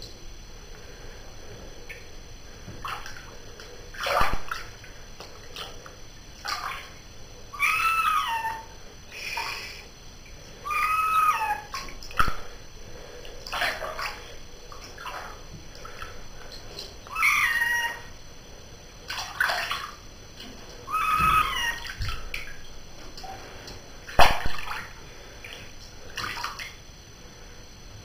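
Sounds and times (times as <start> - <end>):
bath water splashing: 2.8 - 7.0, 10.9 - 18.0, 19.0 - 26.8
cat meowing: 7.6 - 8.7, 10.6 - 11.8, 17.1 - 18.1, 20.9 - 22.0.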